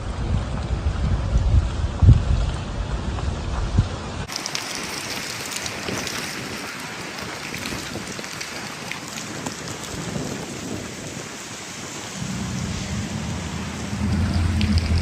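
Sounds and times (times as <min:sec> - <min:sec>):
rain hissing: 0:04.2 - 0:15.0
low steady rumble: 0:12.1 - 0:15.0.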